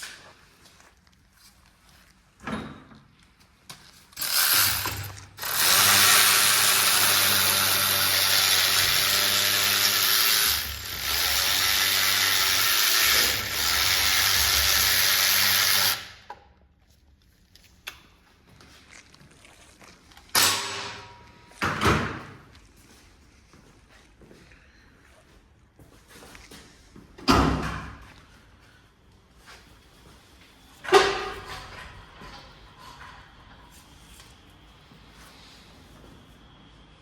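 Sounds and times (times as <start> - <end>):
power tool running: 4.2 - 16.3.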